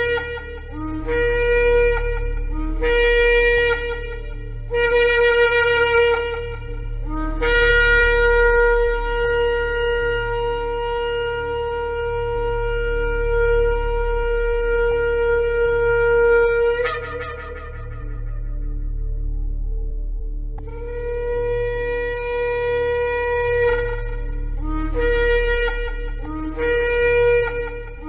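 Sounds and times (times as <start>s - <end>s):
shofar blasts: 0.0s - 19.4s, 20.6s - 28.0s.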